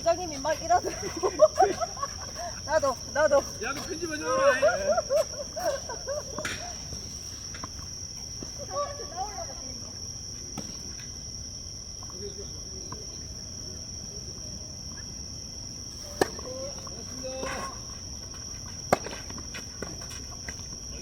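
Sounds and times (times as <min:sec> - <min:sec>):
insects buzzing: 0:00.0 - 0:21.0
tennis ball striking racket: 0:18.8 - 0:20.1.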